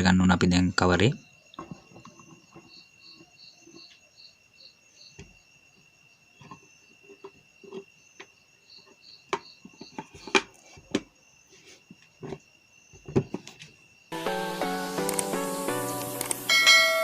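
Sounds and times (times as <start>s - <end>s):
steady high whine: 14.1s - 17.0s.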